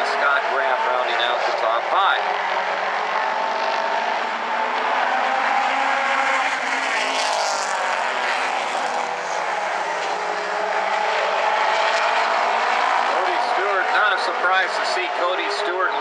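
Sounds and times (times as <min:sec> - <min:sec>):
racing cars passing at full throttle: 0:00.0 - 0:16.0.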